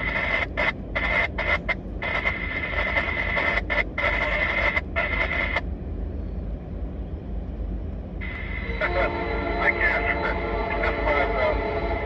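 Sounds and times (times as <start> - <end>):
radio static with tone: 0.0 - 5.6
steady low rumble: 0.0 - 12.0.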